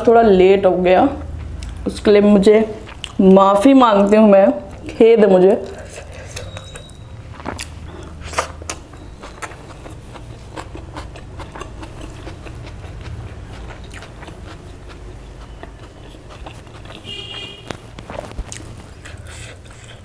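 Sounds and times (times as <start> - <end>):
steady low hum: 0.0 - 20.0
food being chewed: 1.2 - 1.9, 2.8 - 3.3, 4.6 - 20.0
wet mouth clicks and smacks: 5.6 - 14.6.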